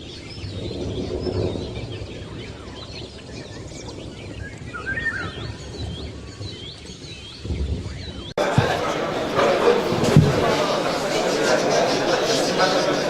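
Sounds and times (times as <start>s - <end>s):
lovebirds chirping: 0.0s - 8.3s
low hall rumble: 8.4s - 13.0s
room noise: 8.4s - 13.0s.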